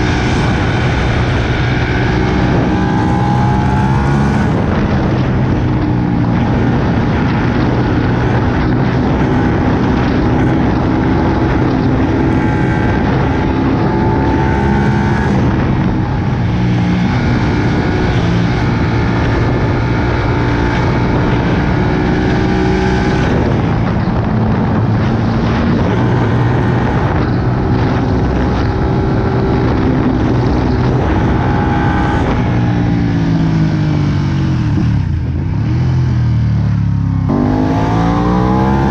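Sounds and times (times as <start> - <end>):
motorcycle engine running hard: 0.0 - 38.9.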